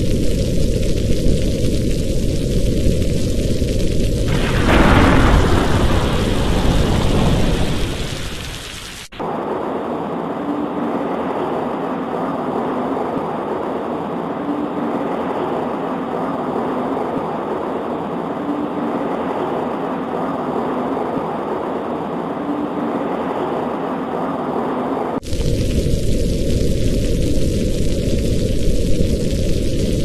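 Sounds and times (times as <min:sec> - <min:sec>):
muffled rushing noise: 0:04.2 - 0:30.0
faint hum: 0:09.2 - 0:29.2.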